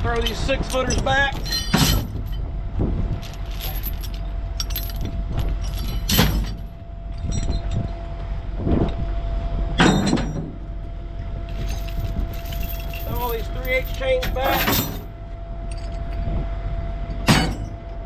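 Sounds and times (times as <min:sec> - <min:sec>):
metal chains clanking: 0:00.0 - 0:02.5, 0:03.2 - 0:07.8, 0:11.5 - 0:16.3, 0:17.2 - 0:17.8
steady low rumble: 0:00.0 - 0:18.0.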